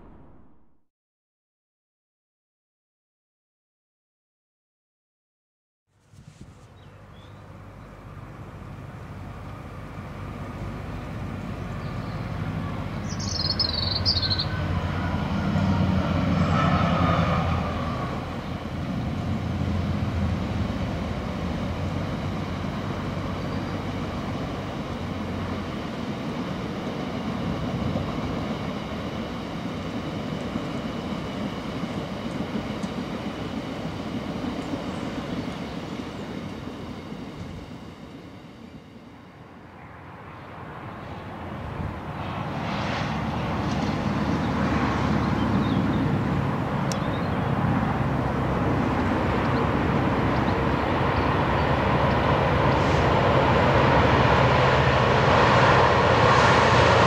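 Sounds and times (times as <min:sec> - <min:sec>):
train rumble: 0:00.0 - 0:00.6, 0:06.0 - 0:57.0
high falling squeal: 0:00.0 - 0:00.8
faint high hum: 0:06.0 - 0:16.5, 0:17.3 - 0:55.2.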